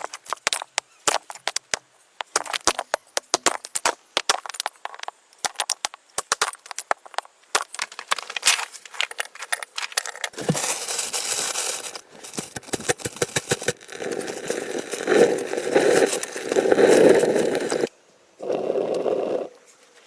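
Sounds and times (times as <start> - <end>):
wood scraping and crackling: 6.4 - 17.9.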